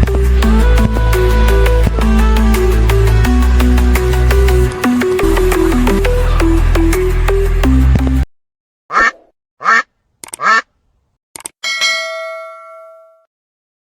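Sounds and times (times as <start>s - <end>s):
background music with a beat: 0.0s - 8.2s
duck quacks: 8.9s - 10.7s
clicks: 10.2s - 10.4s, 11.4s - 11.6s
bell chime ringing: 11.6s - 13.2s.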